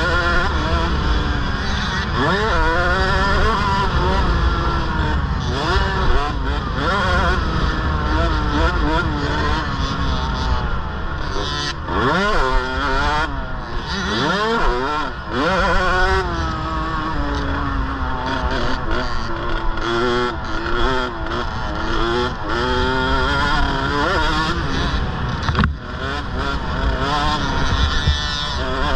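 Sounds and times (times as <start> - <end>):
dirt bike engine revving: 0.0 - 28.9.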